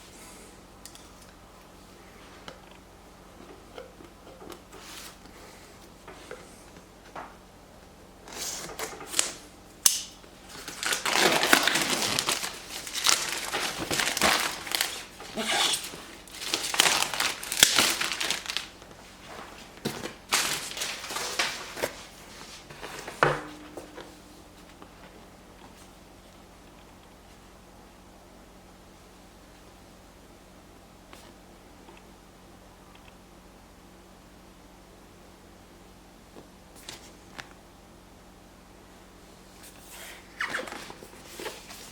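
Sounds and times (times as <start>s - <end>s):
packaging crinkling and rustling: 8.3s - 9.4s, 10.0s - 25.8s, 40.4s - 41.9s.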